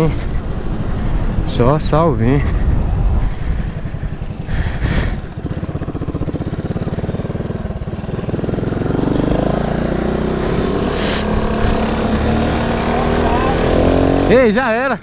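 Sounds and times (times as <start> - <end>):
scooter engine puttering: 0.0 - 1.6, 2.6 - 14.3
short hiss: 10.9 - 11.3.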